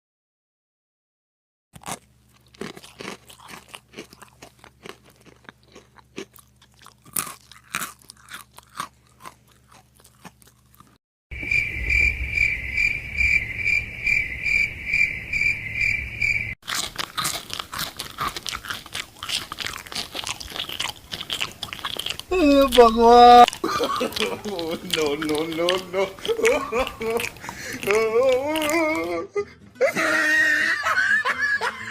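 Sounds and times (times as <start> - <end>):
apple crunching: 1.8 - 11.0, 16.6 - 29.2
low rumble: 11.4 - 16.6.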